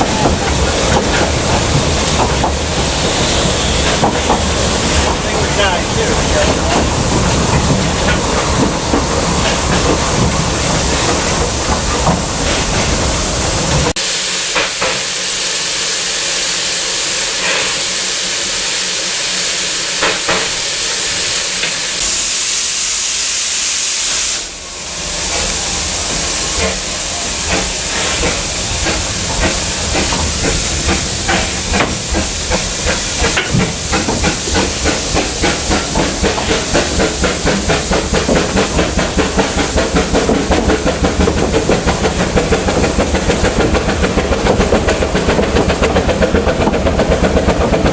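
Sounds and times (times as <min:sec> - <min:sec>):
locomotive exhaust beats: 0:00.0 - 0:13.9, 0:25.2 - 0:47.9
steam locomotive hissing: 0:00.0 - 0:47.9.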